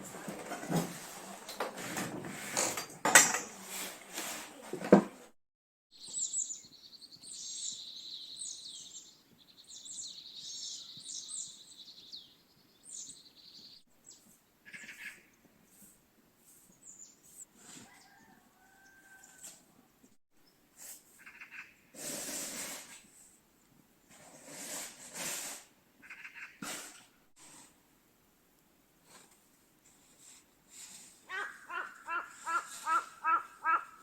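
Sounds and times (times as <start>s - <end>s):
small birds chirping: 6.0s - 18.2s.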